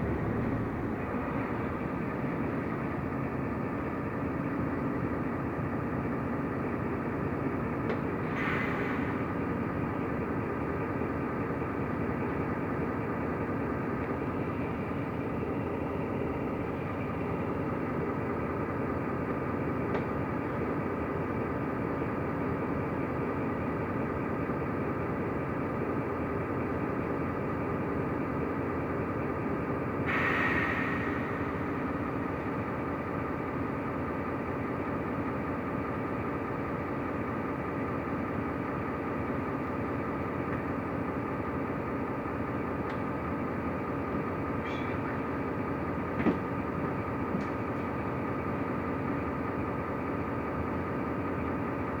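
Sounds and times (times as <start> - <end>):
road noise: 0.0 - 6.1
bus engine drone: 0.0 - 52.0
brief air hiss: 8.3 - 9.1, 30.1 - 31.5.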